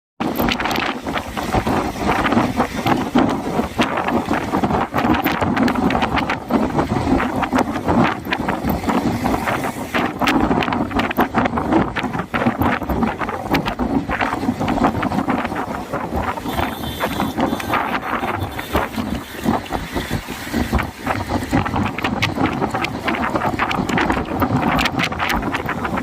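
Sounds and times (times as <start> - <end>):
wind buffeting microphone: 0.2 - 26.0.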